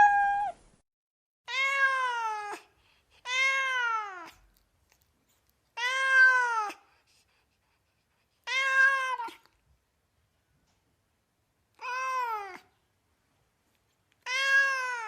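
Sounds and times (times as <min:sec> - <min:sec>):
cat meowing: 0:00.0 - 0:00.6, 0:01.5 - 0:02.6, 0:03.3 - 0:04.4, 0:05.8 - 0:06.8, 0:08.4 - 0:09.5, 0:11.8 - 0:12.7, 0:14.2 - 0:15.0.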